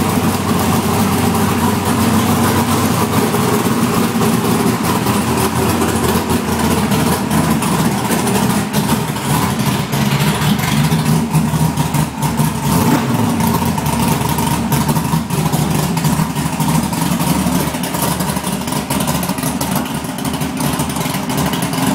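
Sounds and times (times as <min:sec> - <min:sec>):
car engine running: 0:00.0 - 0:21.9.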